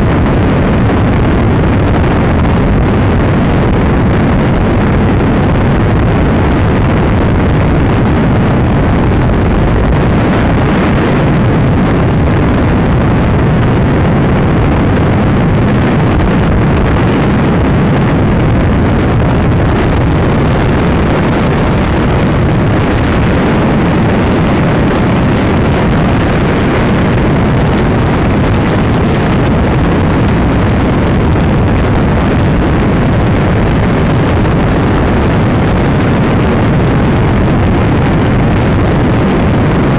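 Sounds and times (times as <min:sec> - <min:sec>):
wind rush on microphone: 0:00.0 - 0:39.9
motorcycle engine running hard: 0:05.4 - 0:36.3.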